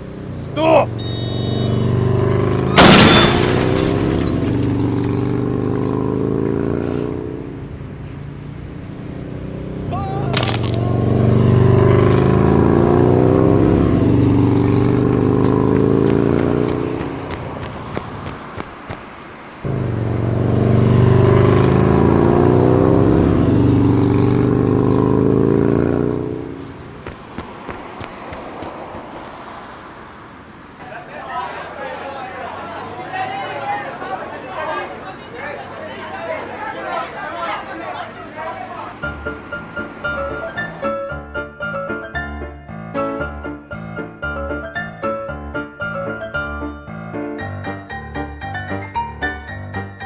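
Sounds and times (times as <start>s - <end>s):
vehicle engine running: 4.6s - 19.0s, 19.6s - 30.3s, 37.3s - 40.8s
engine running: 19.6s - 30.3s.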